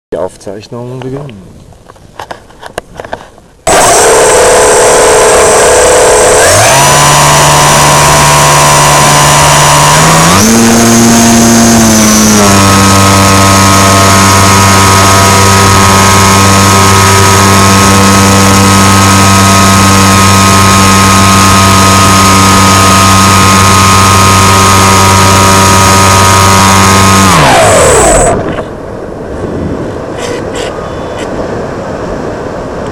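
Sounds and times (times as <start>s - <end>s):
electric motor and propeller whine: 3.7s - 28.8s.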